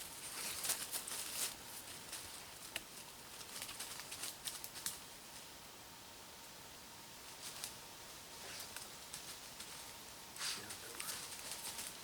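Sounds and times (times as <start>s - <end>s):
crackles and small ticks: 0.4s - 5.5s, 8.6s - 9.8s, 10.7s - 12.0s
light rustling: 8.4s - 12.0s.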